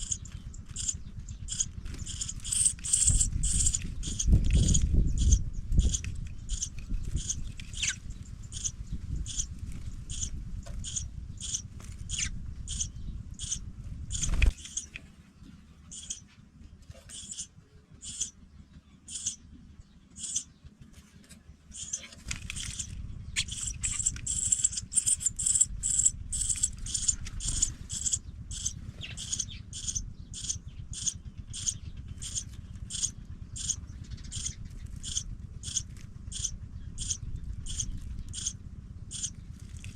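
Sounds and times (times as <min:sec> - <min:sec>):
nestlings cheeping: 0:00.0 - 0:15.0, 0:15.8 - 0:16.3, 0:17.0 - 0:20.6, 0:21.2 - 0:39.9
low rumble: 0:00.0 - 0:39.9.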